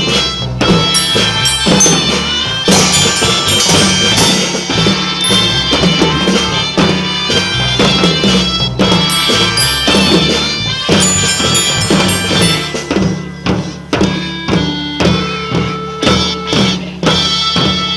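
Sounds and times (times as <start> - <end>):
drums: 0.0 - 17.9
reedy melody: 0.6 - 15.9
tambourines: 0.8 - 6.5, 8.9 - 13.8.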